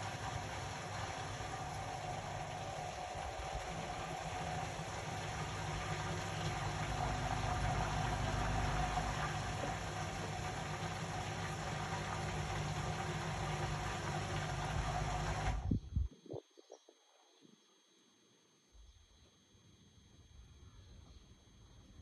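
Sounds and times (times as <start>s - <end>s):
rumble of turning drum: 0.0s - 16.1s
washing machine motor hum: 0.0s - 16.1s.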